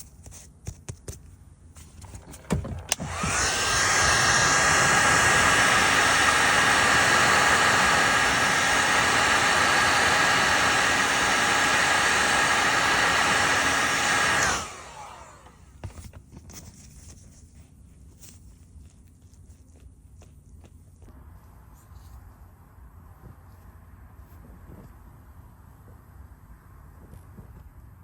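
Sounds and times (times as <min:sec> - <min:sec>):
heat gun blowing with a whine: 0:02.2 - 0:16.0.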